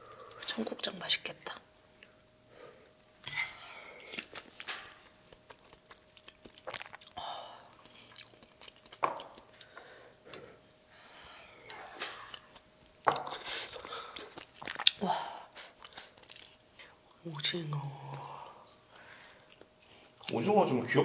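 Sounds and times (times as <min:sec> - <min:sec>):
faint steady hum: 0:00.0 - 0:21.0
person chewing food: 0:03.9 - 0:10.5, 0:11.6 - 0:15.0, 0:15.6 - 0:17.2
wet mouth clicks: 0:05.4 - 0:09.7, 0:14.1 - 0:15.0.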